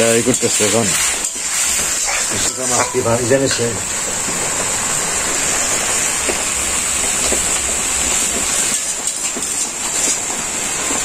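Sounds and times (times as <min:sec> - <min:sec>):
spatula stirring: 0:00.0 - 0:03.8
greens sizzling in a wok: 0:00.0 - 0:11.0.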